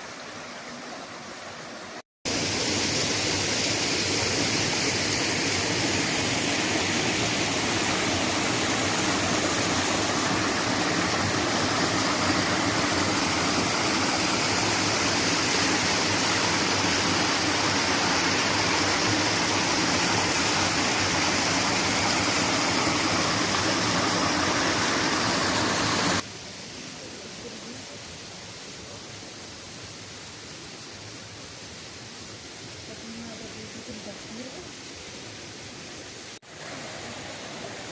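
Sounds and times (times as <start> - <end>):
waterfall rushing: 0.0 - 27.5.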